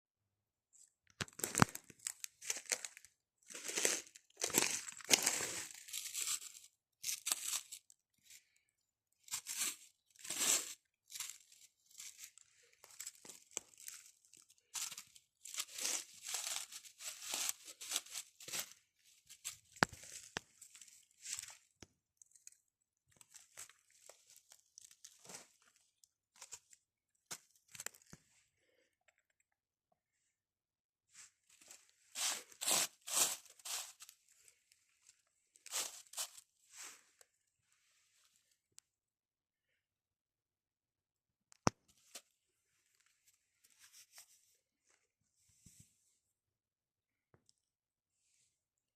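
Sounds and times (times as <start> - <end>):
forest litter rustling and crunching: 1.3 - 8.4, 9.3 - 21.7, 23.2 - 26.8, 31.5 - 34.6, 35.6 - 37.0.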